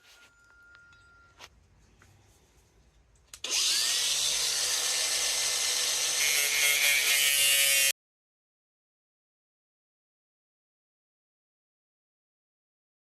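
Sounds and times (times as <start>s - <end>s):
power saw cutting plank: 3.4s - 8.0s.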